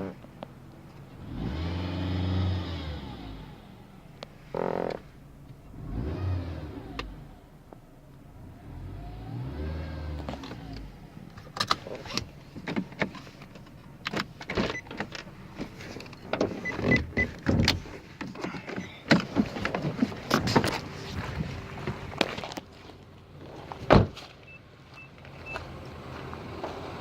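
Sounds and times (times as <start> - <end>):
car engine revving with whine: 1.0 - 12.6.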